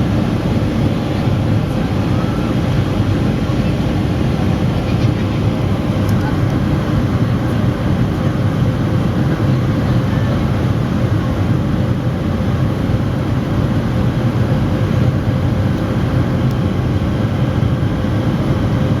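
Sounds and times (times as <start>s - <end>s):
faint steady hum: 0.0s - 8.6s
jet engine cabin rumble: 0.0s - 19.0s.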